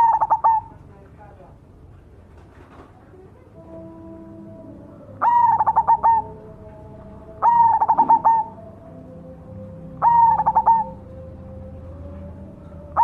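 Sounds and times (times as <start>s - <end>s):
dove cooing: 0.0s - 0.8s, 4.9s - 6.7s, 7.3s - 8.8s, 9.9s - 11.3s.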